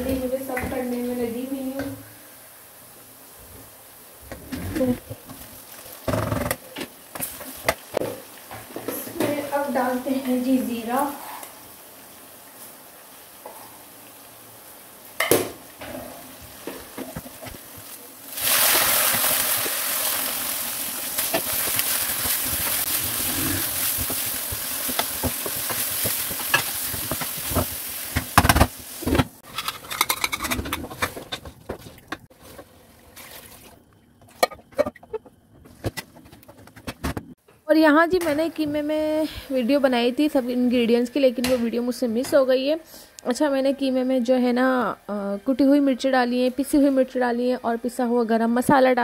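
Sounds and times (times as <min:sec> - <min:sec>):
meat sizzling in a pan: 0:05.0 - 0:29.4
spatula scraping and stirring: 0:21.2 - 0:28.3.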